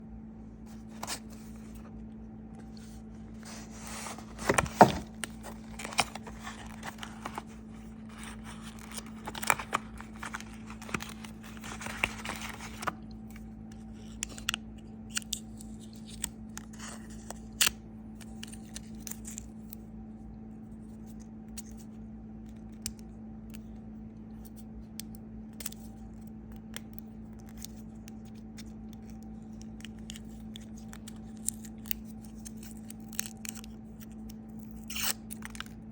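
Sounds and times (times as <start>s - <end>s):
steady low hum: 0.0s - 35.9s
packaging scraping and rustling: 2.6s - 13.0s.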